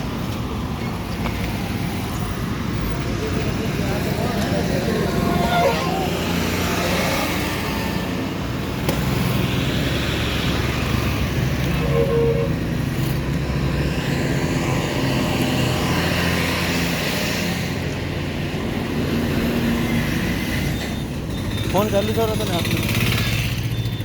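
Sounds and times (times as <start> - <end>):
vehicle engine hum: 0.0 - 17.2
highway traffic noise: 0.0 - 24.0.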